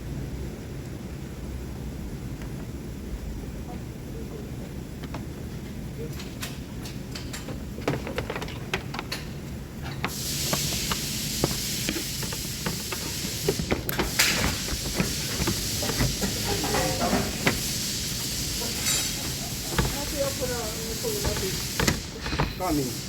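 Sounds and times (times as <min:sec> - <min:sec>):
steady hiss: 0:09.0 - 0:23.0.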